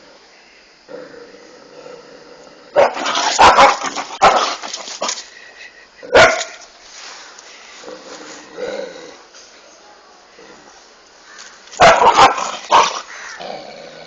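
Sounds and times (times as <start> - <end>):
dog barking: 2.8 - 4.6, 6.1 - 6.6, 11.8 - 13.0.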